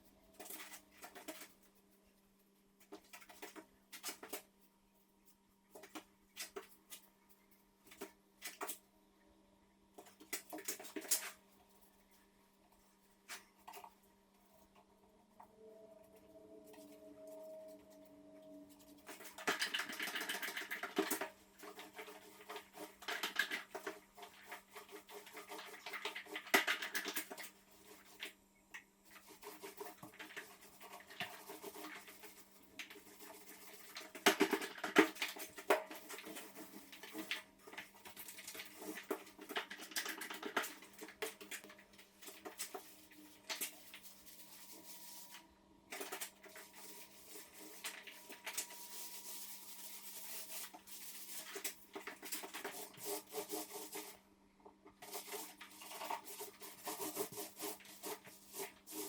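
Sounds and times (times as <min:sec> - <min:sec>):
faint steady hum: 0:00.0 - 0:59.0
scraping and rubbing strokes: 0:29.1 - 0:54.2, 0:55.0 - 0:59.0.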